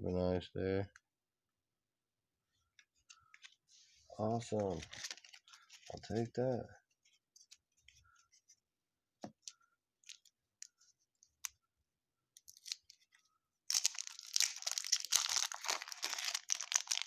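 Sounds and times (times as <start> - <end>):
card pack wrapper crinkling: 4.5 - 6.0, 12.4 - 17.0.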